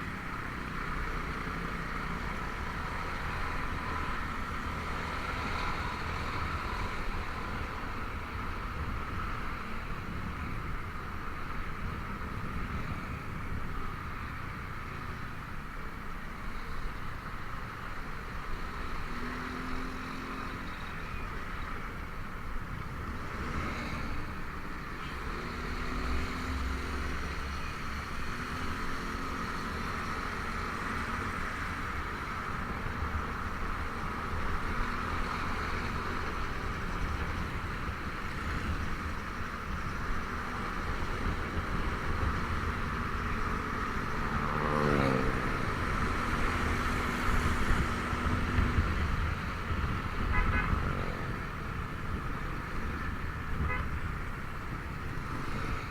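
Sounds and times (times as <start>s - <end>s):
road and air noise: 0.0s - 55.9s.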